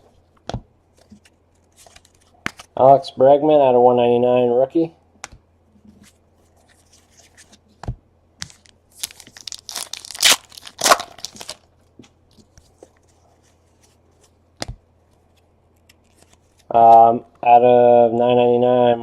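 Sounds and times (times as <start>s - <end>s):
card pack tearing and crinkling: 8.5s - 11.7s.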